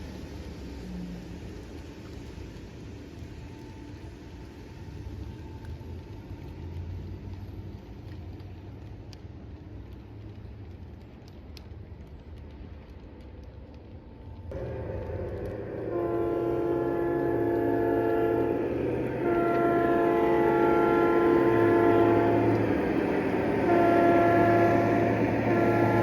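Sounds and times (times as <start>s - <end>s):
train rumbling: 0.0s - 26.0s
train horn chord: 14.6s - 26.0s.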